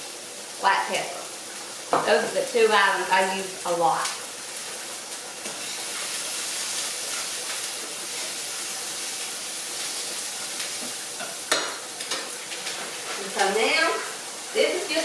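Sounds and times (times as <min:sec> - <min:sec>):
onion and bacon sizzling in a pan: 0:00.0 - 0:15.0.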